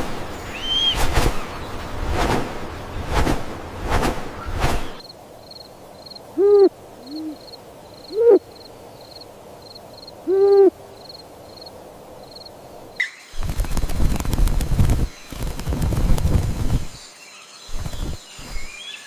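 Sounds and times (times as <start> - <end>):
owl hooting: 6.4 - 7.5, 8.1 - 8.5, 10.2 - 10.8.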